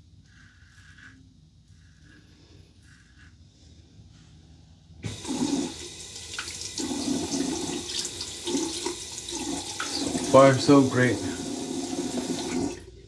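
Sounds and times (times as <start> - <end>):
tap water running into sink: 5.0 - 12.8.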